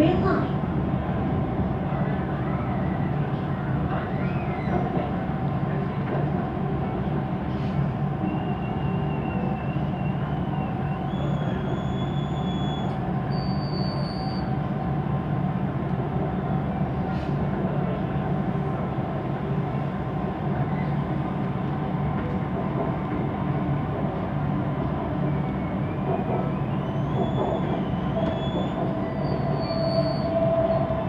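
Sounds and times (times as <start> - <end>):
train wheels rumbling: 14.4 - 31.0.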